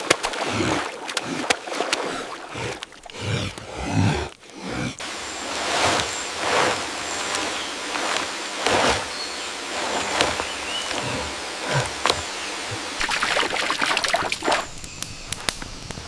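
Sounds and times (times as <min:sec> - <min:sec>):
soft water splashes: 0:00.0 - 0:03.4, 0:09.7 - 0:14.7
water rushing: 0:00.0 - 0:14.8.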